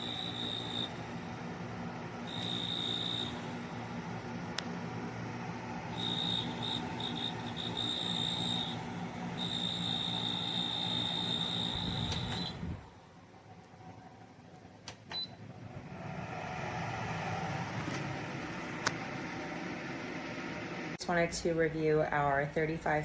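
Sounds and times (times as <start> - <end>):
high-pitched whine: 0.0 - 1.0, 2.2 - 3.7, 5.9 - 13.0
dehumidifier humming: 0.0 - 23.0.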